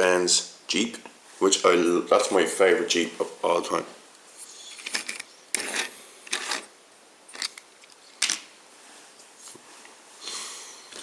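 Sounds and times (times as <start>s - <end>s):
rustle: 2.8s - 11.0s
metal toy vehicles clattering: 4.7s - 6.7s, 7.3s - 8.5s.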